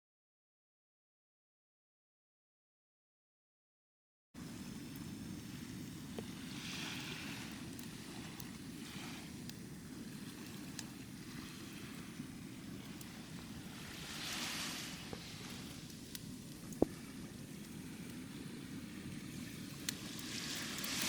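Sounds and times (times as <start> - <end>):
low rumble of surf: 4.4 - 21.0
waves washing onto beach: 4.4 - 21.0
wind: 4.4 - 21.0.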